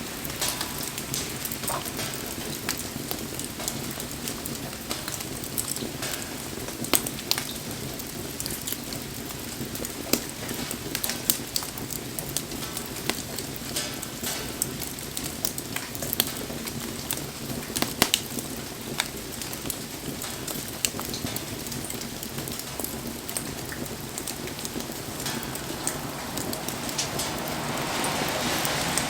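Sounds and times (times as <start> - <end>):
falling rain hiss: 0.0 - 15.2, 16.1 - 29.0
wood fire crackling and popping: 0.0 - 29.0.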